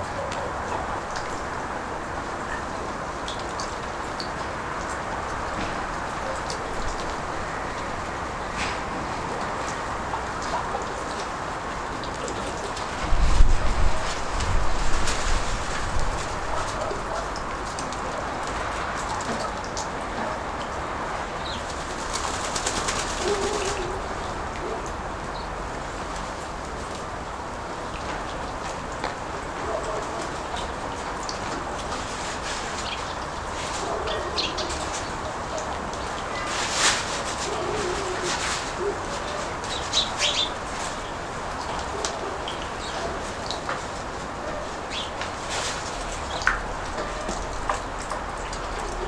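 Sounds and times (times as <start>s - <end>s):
wind noise: 12.8s - 17.7s
pigeon cooing: 22.7s - 25.0s, 33.7s - 43.6s.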